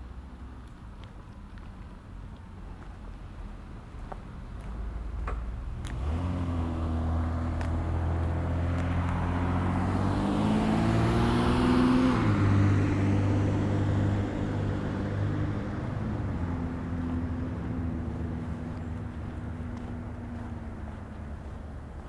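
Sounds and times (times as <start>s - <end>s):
road noise: 0.0s - 22.0s
vehicle accelerating past: 5.6s - 22.0s.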